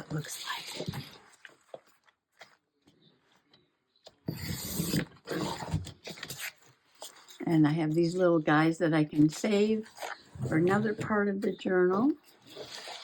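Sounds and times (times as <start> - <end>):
paper being cut: 4.3 - 6.6.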